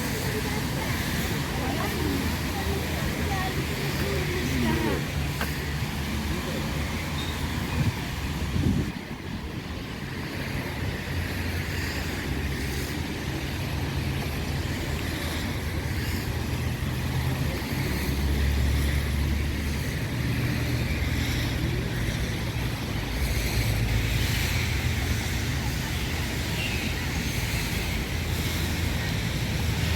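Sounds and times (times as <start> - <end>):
wind buffeting microphone: 0.0 - 11.2
passing traffic rumble: 0.0 - 29.9.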